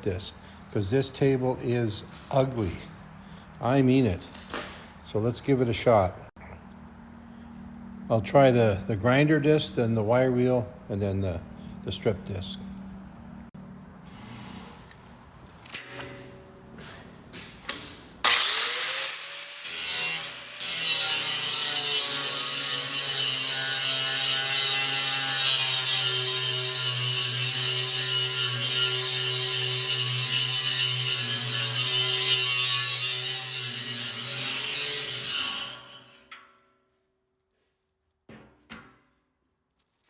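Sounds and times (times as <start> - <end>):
angle grinder grinding steel: 18.2 - 36.3.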